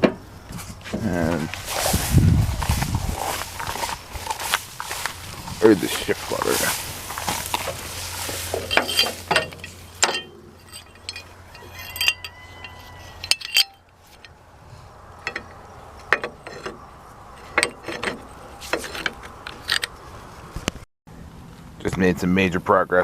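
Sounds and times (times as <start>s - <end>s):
steady low background hum: 0.0s - 22.8s
metallic clicks and clinks: 8.6s - 14.4s.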